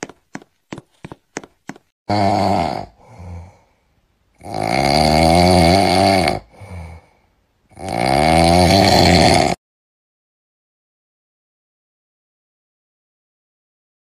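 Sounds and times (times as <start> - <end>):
loud snoring: 2.1 - 3.5, 4.4 - 7.0, 7.7 - 9.6
quiet breath: 2.9 - 4.0, 6.4 - 7.4.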